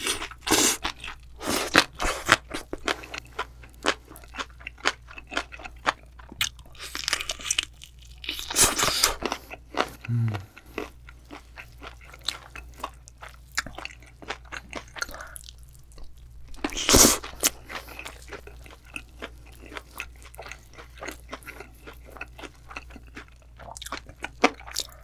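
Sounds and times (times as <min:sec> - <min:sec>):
crisp crunching and chewing: 0:00.0 - 0:25.0
low throat sound: 0:10.0 - 0:10.6.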